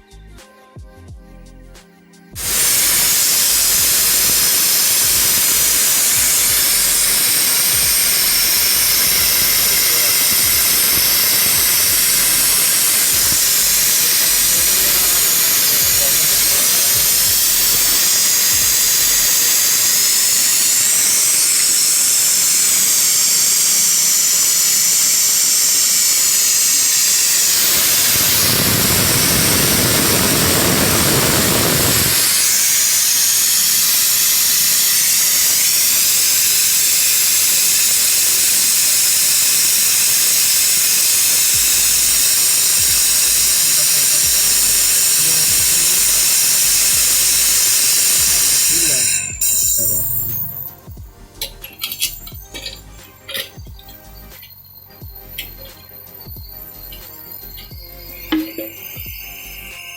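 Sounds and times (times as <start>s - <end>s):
pressurized air hissing: 2.3s - 59.9s.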